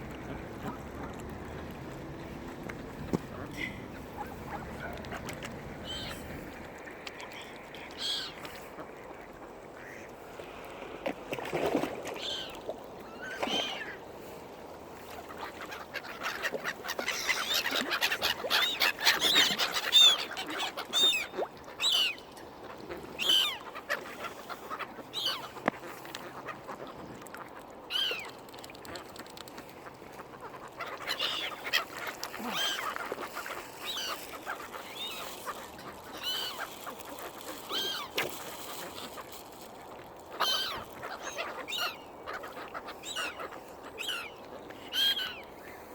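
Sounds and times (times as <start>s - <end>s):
gulls and ducks calling: 3.1s - 6.4s, 15.3s - 27.0s, 30.2s - 38.1s, 40.3s - 45.9s.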